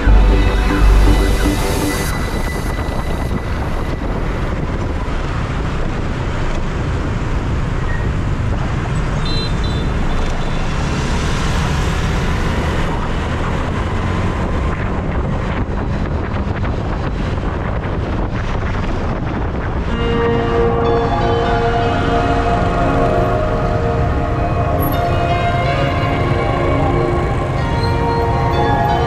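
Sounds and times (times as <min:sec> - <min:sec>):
brief high tone: 0:00.0 - 0:04.6, 0:19.9 - 0:29.0
wind rushing over microphone: 0:00.0 - 0:09.2, 0:10.3 - 0:29.0
road traffic: 0:00.0 - 0:29.0.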